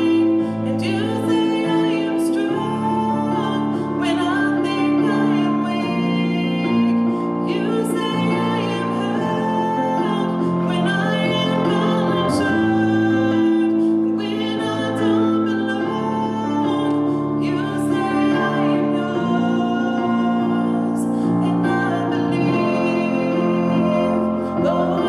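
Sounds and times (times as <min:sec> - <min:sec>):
piano: 0:00.0 - 0:25.0
woman singing slow song: 0:00.0 - 0:25.0.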